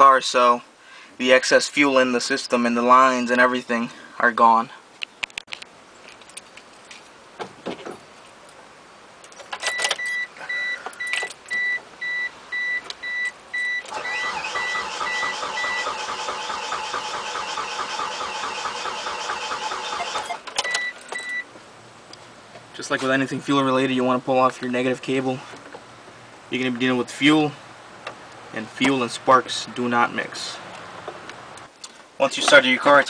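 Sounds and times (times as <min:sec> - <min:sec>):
car engine cranking and running: 0:13.8 - 0:21.2.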